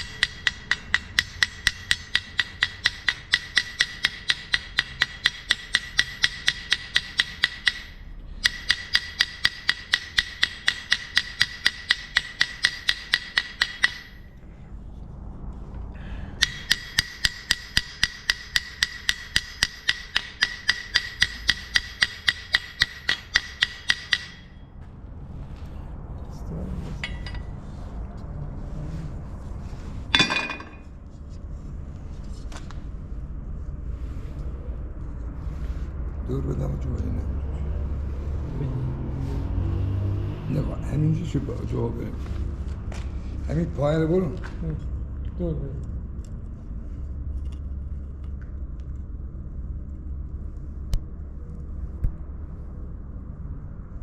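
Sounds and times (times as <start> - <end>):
hammer striking steel: 0.0 - 14.4, 16.4 - 24.7, 27.0 - 27.5, 30.1 - 30.9.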